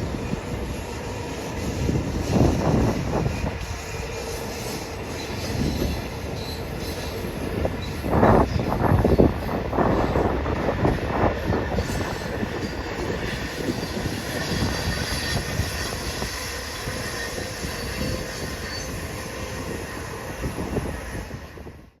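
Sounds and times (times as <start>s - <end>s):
train wheels rumbling on rails: 0.0s - 22.0s
faint wheel squeal: 11.7s - 21.6s.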